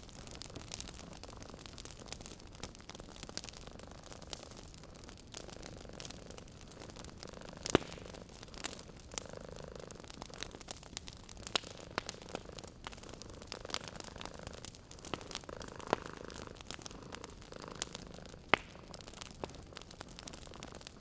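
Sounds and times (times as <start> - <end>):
wood fire crackling: 0.0 - 21.0
cat purring: 5.4 - 21.0.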